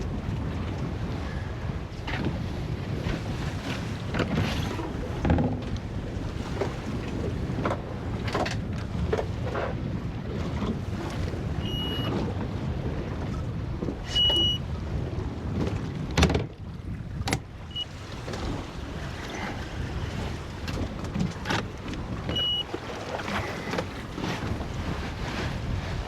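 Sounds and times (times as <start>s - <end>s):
sea water: 0.0s - 26.0s
wind: 0.0s - 26.0s
short electronic beeps: 11.6s - 12.2s, 14.1s - 14.6s, 17.7s - 18.0s, 22.3s - 22.7s.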